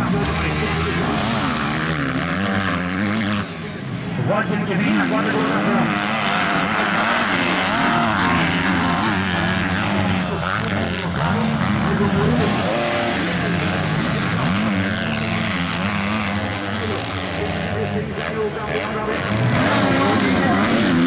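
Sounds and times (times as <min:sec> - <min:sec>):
motocross bikes revving: 0:00.0 - 0:21.0.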